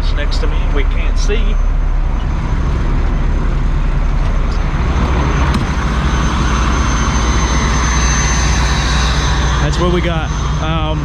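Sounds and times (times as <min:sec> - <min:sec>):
diesel truck engine idling: 0:00.0 - 0:11.0
thin high whine: 0:04.5 - 0:11.0.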